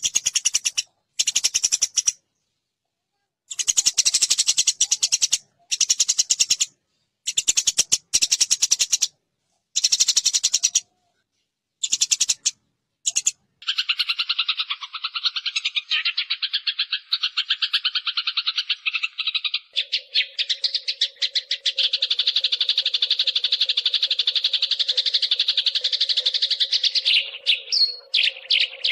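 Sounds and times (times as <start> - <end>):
sparrows harsh chattering: 0.0 - 2.2, 3.5 - 9.2, 9.8 - 11.0, 11.8 - 28.9.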